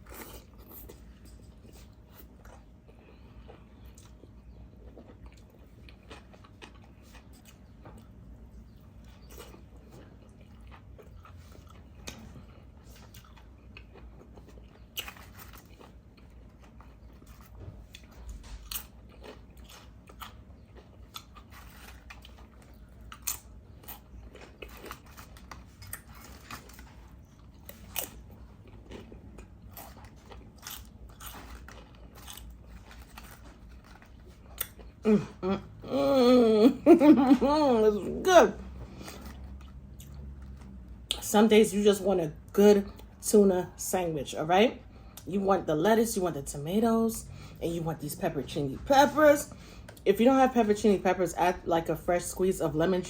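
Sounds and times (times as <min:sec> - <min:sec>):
chewing with crunches: 0:00.0 - 0:35.8, 0:37.2 - 0:41.3.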